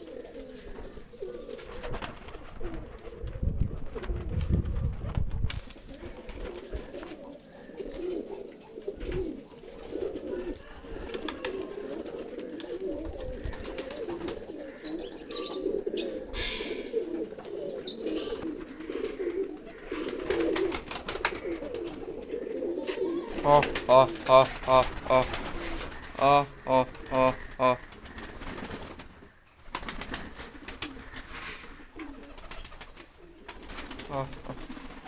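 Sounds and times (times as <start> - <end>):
pigeons cooing: 0.0 - 35.0.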